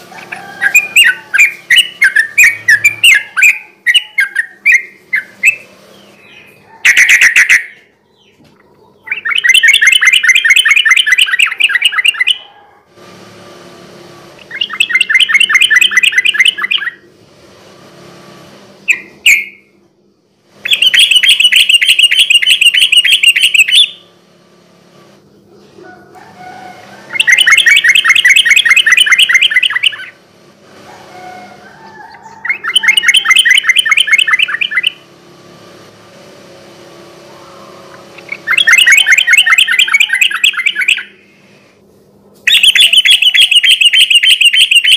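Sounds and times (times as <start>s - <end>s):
bird singing rolling trills: 0.0s - 12.6s, 14.4s - 17.2s, 18.8s - 35.5s, 36.4s - 41.5s, 42.5s - 44.9s
sharp bird calls: 0.0s - 12.8s, 14.4s - 17.1s, 20.6s - 24.2s, 25.3s - 30.2s, 30.8s - 35.1s, 37.2s - 41.5s, 42.5s - 44.9s.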